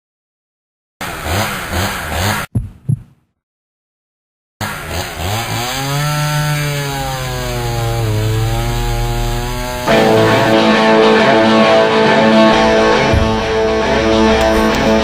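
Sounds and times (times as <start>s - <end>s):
small motor droning: 4.6s - 10.5s
strummed guitar music: 9.4s - 15.0s.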